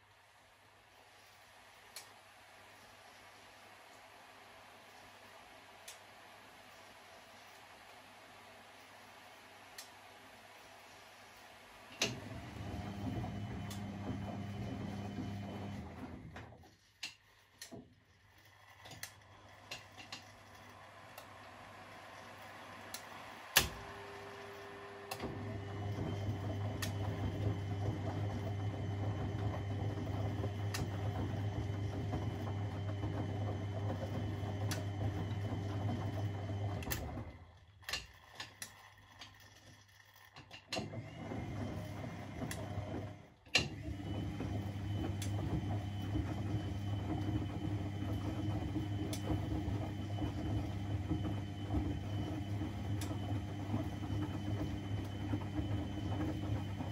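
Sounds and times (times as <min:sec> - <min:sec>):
washing machine drum humming: 0:11.7 - 0:17.8, 0:19.0 - 0:38.7, 0:40.6 - 0:56.9
washing machine click: 0:22.9 - 0:24.0.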